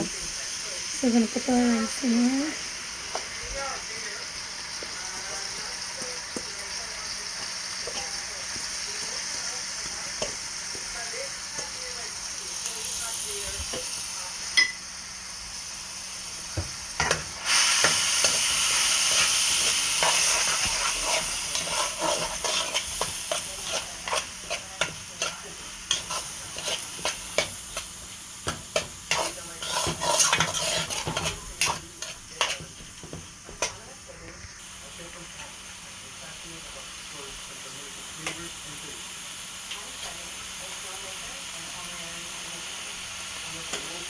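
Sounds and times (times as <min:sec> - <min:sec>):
rice sizzling in hot oil: 0:00.0 - 0:44.0
spoon scraping a pot: 0:17.0 - 0:33.8.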